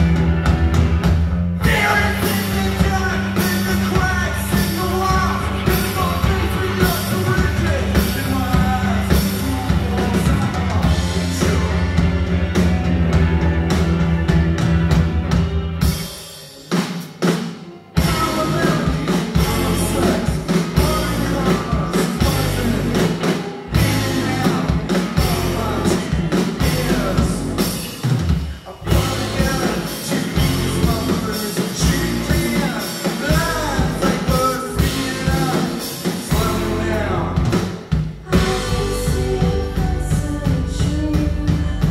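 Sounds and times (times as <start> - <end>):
drum kit: 0.0 - 41.9
rock band playing live: 0.0 - 41.9
person singing: 1.6 - 12.6, 17.6 - 37.6, 38.2 - 41.9.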